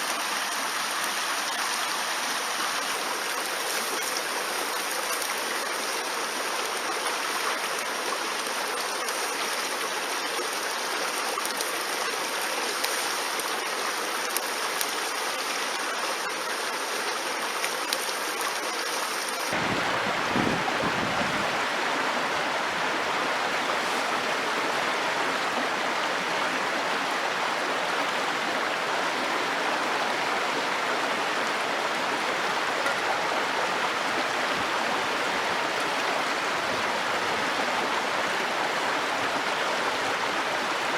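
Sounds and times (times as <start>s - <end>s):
stream rushing: 10.8s - 40.9s.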